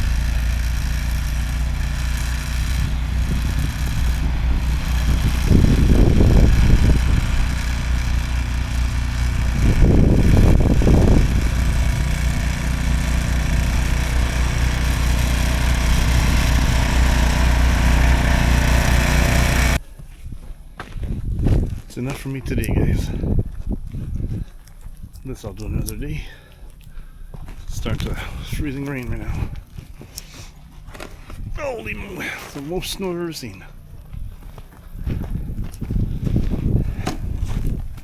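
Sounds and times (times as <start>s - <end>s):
snowblower engine running: 0.0s - 19.8s.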